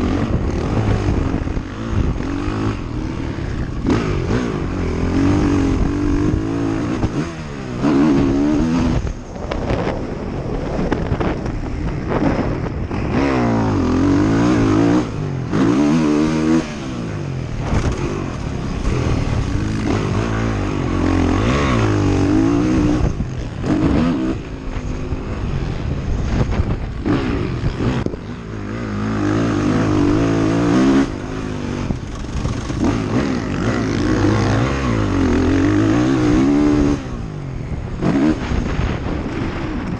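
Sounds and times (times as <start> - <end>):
quad bike engine revving: 0.0 - 9.9, 12.1 - 39.6.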